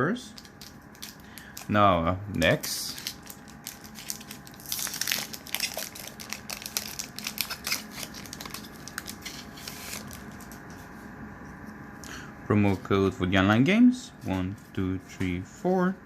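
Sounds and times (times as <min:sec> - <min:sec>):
foil wrapper tearing and crinkling: 0:00.4 - 0:01.8, 0:02.4 - 0:10.6.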